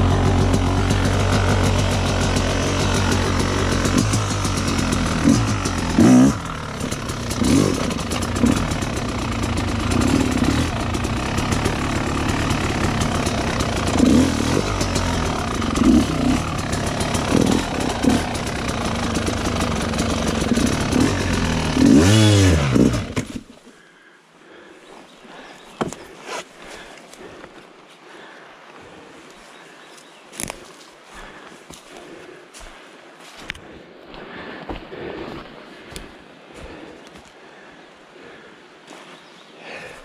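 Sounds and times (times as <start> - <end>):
two-stroke engine revving: 0.0 - 23.5.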